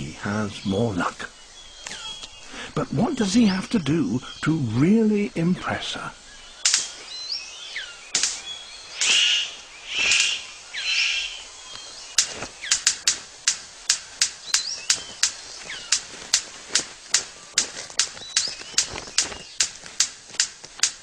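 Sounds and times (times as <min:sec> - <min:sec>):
bird harsh rasping calls: 0:00.0 - 0:20.4
bird sharp clicks: 0:01.8 - 0:03.5, 0:06.3 - 0:21.0
bird falling whistles: 0:06.6 - 0:11.9.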